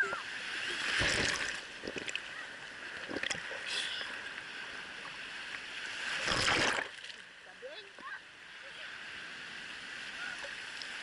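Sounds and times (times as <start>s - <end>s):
loud rush of water: 5.7s - 11.0s.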